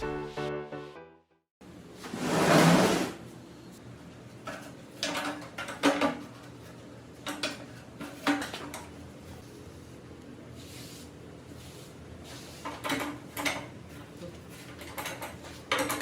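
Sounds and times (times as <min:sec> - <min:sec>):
metal scraping rub: 0:02.1 - 0:03.2.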